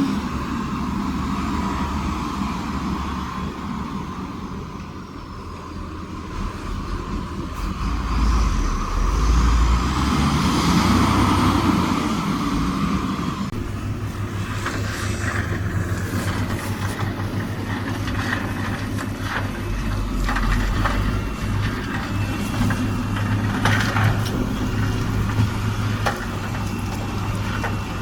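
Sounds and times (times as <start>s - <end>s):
diesel machinery running: 0.0s - 28.0s
machine whine: 13.5s - 28.0s.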